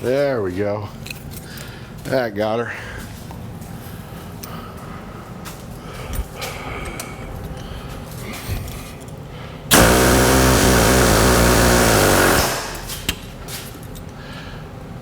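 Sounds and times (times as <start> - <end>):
power tool running: 9.7 - 13.2.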